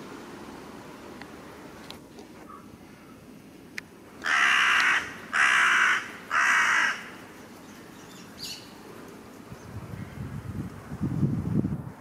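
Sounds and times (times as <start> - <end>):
bird harsh calls: 4.2 - 8.8.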